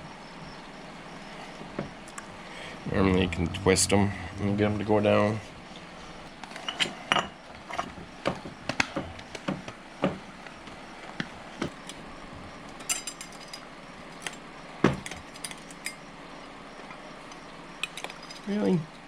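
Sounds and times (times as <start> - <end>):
metal parts knocking and clinking: 12.8 - 13.6.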